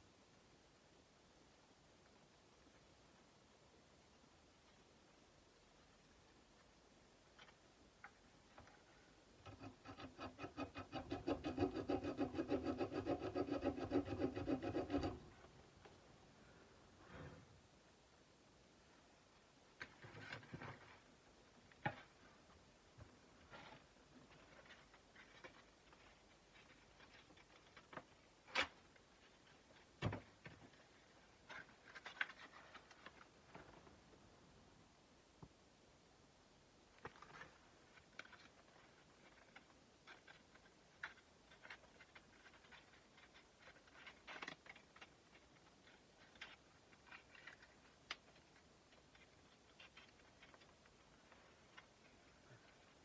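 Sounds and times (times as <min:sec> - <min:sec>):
sandpaper rubbing on steel blade: 0:09.6 - 0:15.2.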